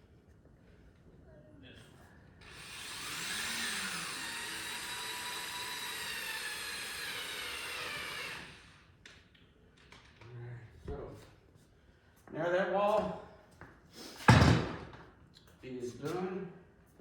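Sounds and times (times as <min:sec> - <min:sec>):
power drill whining: 0:02.4 - 0:09.1.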